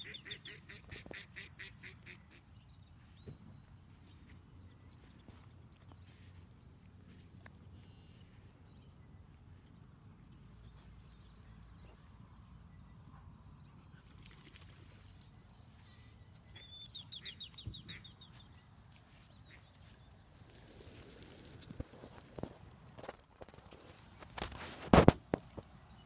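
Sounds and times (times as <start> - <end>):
faint outdoor background: 0.0 - 26.0
footsteps on grass: 17.9 - 22.7.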